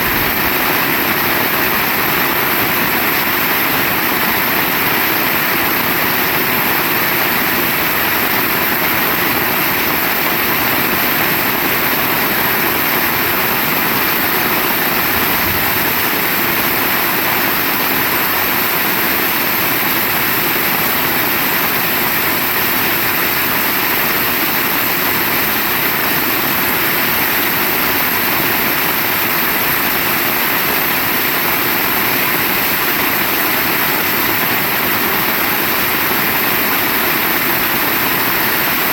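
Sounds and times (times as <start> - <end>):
heavy rain falling: 0.0 - 6.2, 8.0 - 19.1.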